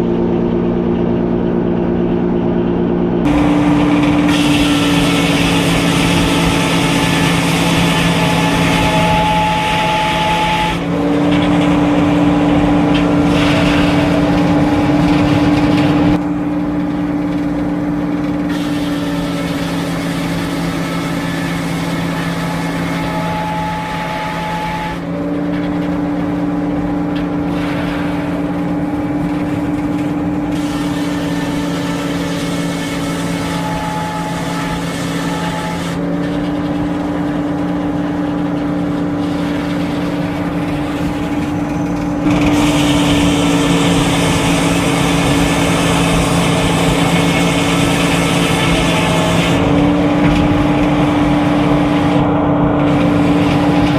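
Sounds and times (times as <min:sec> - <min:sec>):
sawmill drone: 0:00.0 - 0:53.9
saw blade cutting log: 0:03.2 - 0:53.9.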